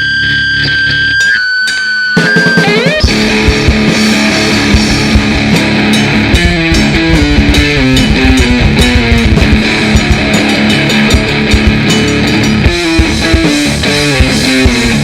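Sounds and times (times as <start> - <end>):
distorted electric guitar riff: 0.0 - 15.0
dense drumming: 2.6 - 15.0.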